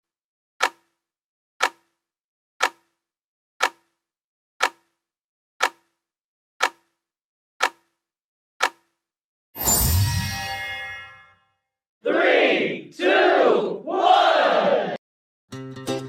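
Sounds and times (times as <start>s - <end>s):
sharp clock ticking: 0.6s - 1.0s, 1.6s - 2.0s, 2.6s - 3.0s, 3.6s - 4.0s, 4.6s - 5.0s, 5.6s - 6.0s, 6.6s - 7.0s, 7.6s - 7.9s, 8.6s - 8.9s.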